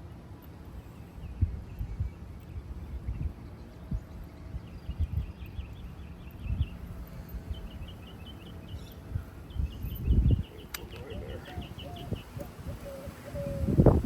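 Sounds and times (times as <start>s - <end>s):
sharp click: 10.7s - 11.0s.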